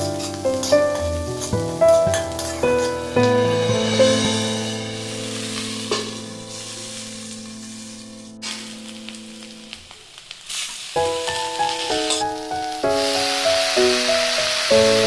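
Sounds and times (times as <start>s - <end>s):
background music: 0.0s - 9.7s
potatoes sizzling in oil: 0.0s - 15.0s.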